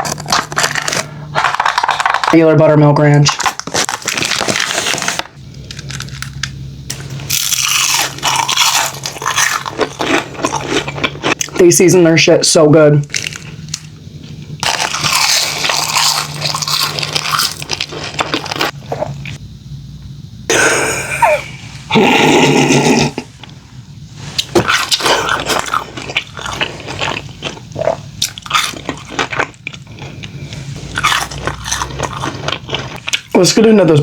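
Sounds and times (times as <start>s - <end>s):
chewing and crunching fried food: 0.0s - 2.4s, 3.3s - 12.1s, 13.1s - 19.4s, 24.3s - 34.0s.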